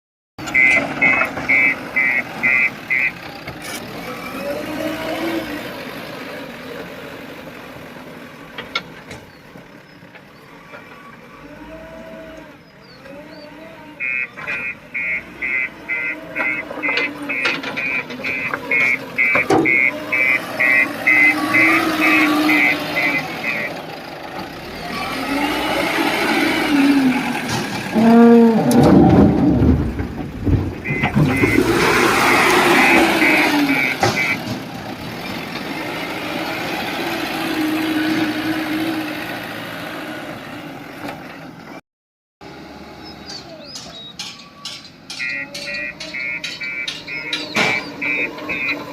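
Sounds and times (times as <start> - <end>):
diesel engine revving: 0.4 - 41.8, 42.4 - 44.1, 45.0 - 48.9
reversing alarm beeps: 0.5 - 3.2, 14.0 - 23.7, 30.8 - 34.4, 45.2 - 48.9.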